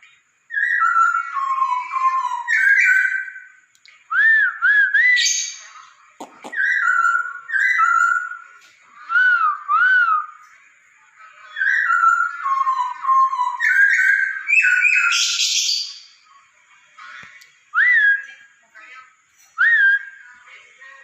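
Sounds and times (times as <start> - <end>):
bird whistling song: 0.5 - 10.6, 11.6 - 16.1, 17.7 - 18.4, 19.4 - 20.3.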